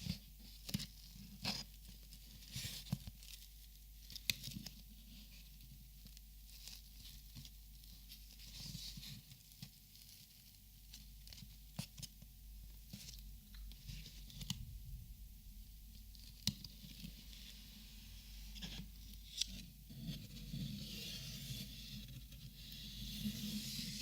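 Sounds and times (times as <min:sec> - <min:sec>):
soft rustling: 0:00.0 - 0:20.6.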